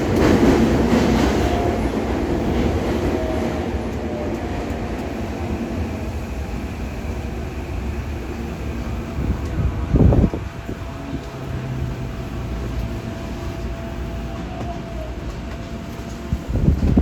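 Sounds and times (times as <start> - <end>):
subway car rumbling: 0.0 - 17.0.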